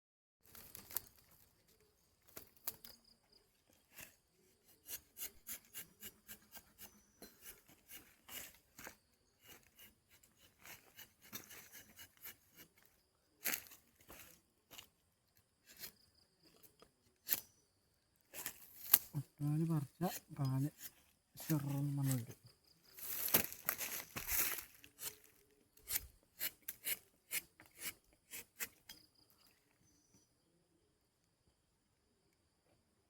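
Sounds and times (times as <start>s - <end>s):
knife scraping tree bark: 3.9s - 12.9s, 15.6s - 16.0s, 16.6s - 17.6s, 20.0s - 22.2s, 23.0s - 29.0s.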